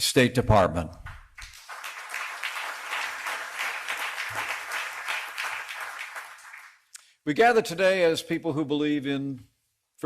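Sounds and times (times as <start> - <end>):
audience applauding: 1.3 - 6.9.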